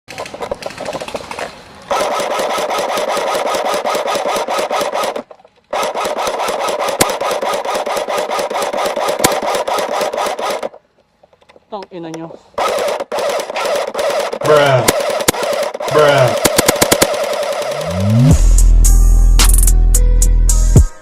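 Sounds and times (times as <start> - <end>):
rapid mechanical rattle: 0.1 - 10.8, 12.6 - 18.4.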